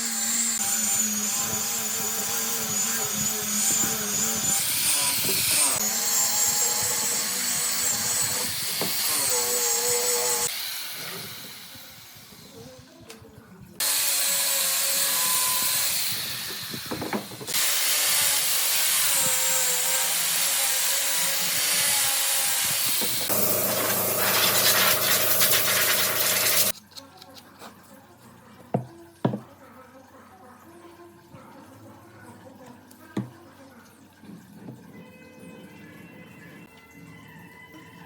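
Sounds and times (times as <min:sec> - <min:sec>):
power tools working wood: 0:00.0 - 0:11.8, 0:13.8 - 0:26.7.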